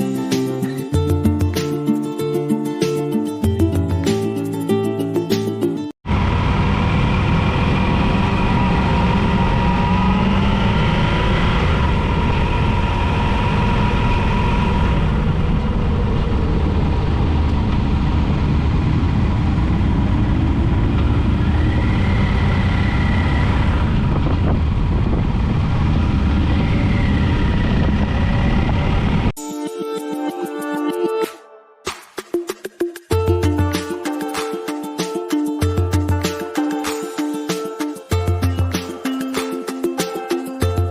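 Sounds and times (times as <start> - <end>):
wind noise on microphone: 7.2 - 29.3.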